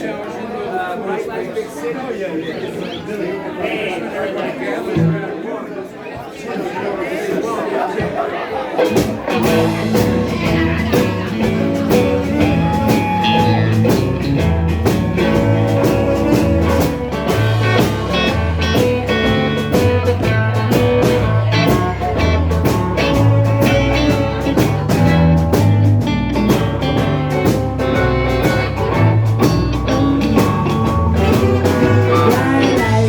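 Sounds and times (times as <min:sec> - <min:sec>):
bass guitar: 0:08.8 - 0:33.0
drums steady beat: 0:08.8 - 0:33.0
electric guitar lead: 0:08.8 - 0:33.0.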